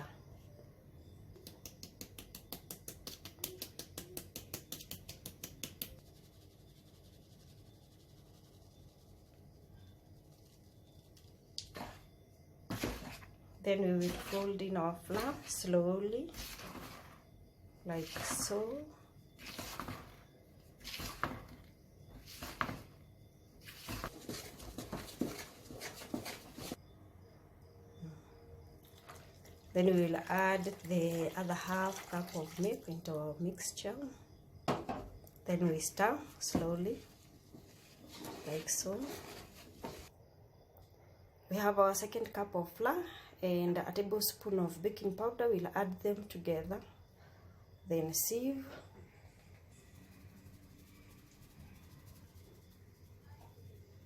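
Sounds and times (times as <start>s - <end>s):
sieve tapping while sifting flour: 1.4s - 6.1s
stick scraping cake batter: 10.2s - 12.1s, 12.7s - 17.2s, 17.9s - 20.2s, 20.8s - 23.0s, 23.6s - 26.8s, 36.6s - 40.1s.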